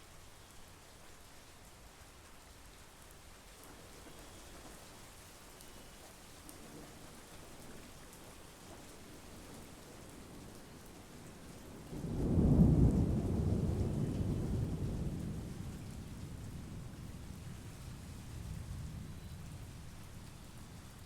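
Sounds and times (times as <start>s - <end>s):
heavy rain: 0.1s - 21.0s
rolling thunder rumble: 11.5s - 21.0s.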